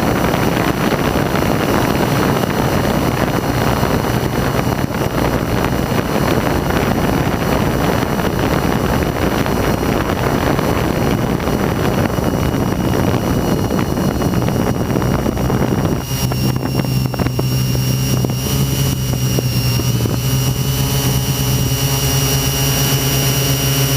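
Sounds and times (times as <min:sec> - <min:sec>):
drone motors buzzing: 0:00.0 - 0:23.9
wind noise: 0:00.0 - 0:23.9.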